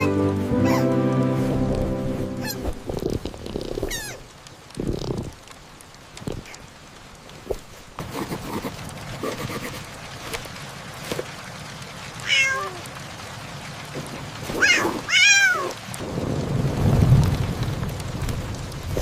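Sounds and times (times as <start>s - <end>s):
steady rain: 0.0s - 19.0s
cat meowing: 12.2s - 12.8s, 14.6s - 15.8s
low rumble of thunder: 16.0s - 19.0s.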